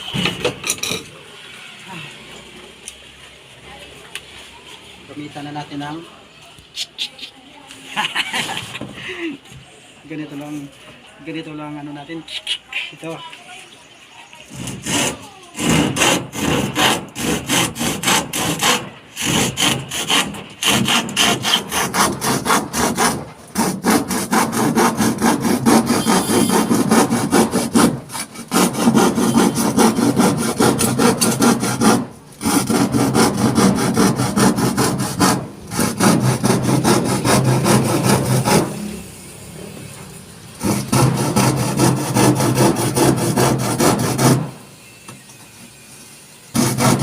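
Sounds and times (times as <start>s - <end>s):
handsaw cutting wood: 14.5s - 39.0s, 40.6s - 44.6s, 46.5s - 47.0s.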